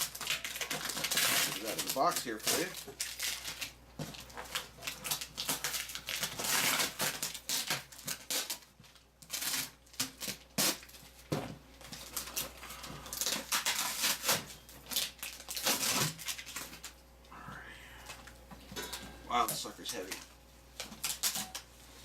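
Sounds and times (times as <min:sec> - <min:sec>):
cardboard and packing rustling: 0:00.0 - 0:17.0.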